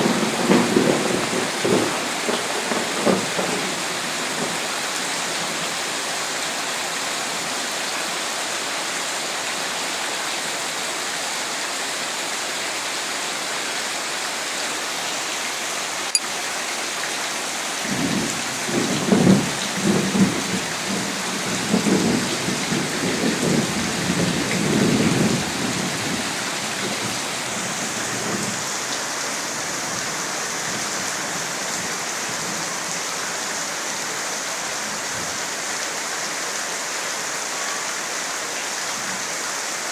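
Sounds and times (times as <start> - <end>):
thunder rumbling: 0.0 - 4.6, 17.9 - 28.7
steady rain: 0.0 - 39.9.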